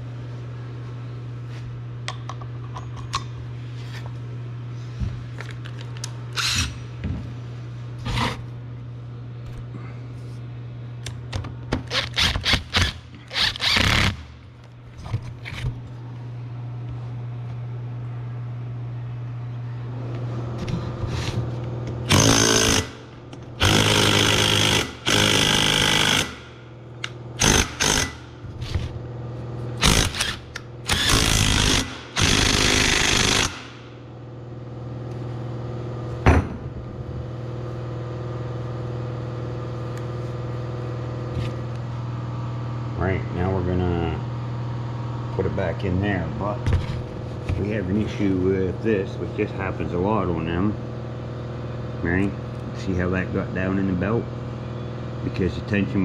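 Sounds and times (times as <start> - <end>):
steady low hum: 0.0 - 56.0
power tool bursts: 11.9 - 14.2, 22.1 - 23.0, 23.6 - 26.5, 27.4 - 28.2, 29.8 - 33.8.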